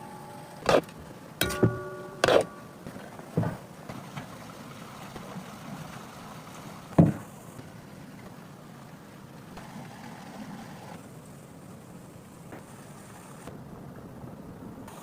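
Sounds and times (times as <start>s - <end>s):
sharp metallic knocks and clanks: 0.6s - 3.7s.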